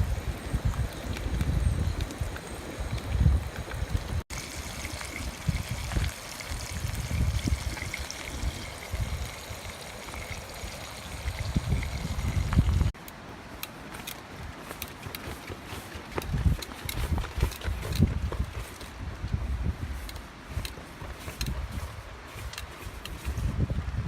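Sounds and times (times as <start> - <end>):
wind buffeting microphone: 0.0 - 13.0, 14.4 - 24.0
river water flowing: 2.1 - 15.7.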